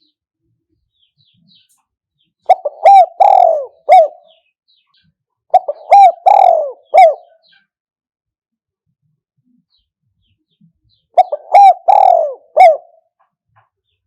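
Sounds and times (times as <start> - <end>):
dove cooing: 2.5 - 4.4, 5.5 - 7.5, 11.2 - 13.1.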